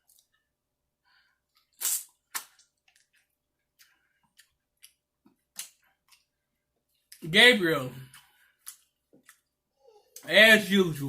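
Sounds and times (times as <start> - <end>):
person biting and chewing fruit: 1.5 - 6.4.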